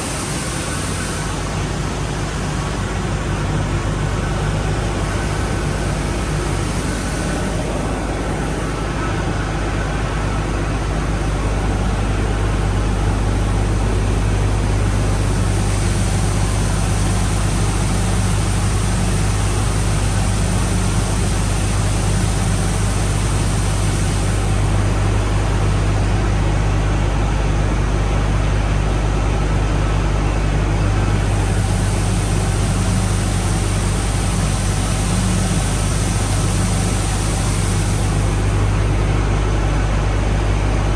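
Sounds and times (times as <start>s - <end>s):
hiss: 0.0s - 9.1s, 11.2s - 26.2s, 31.0s - 39.1s
machine and water-flow drone: 0.0s - 40.9s.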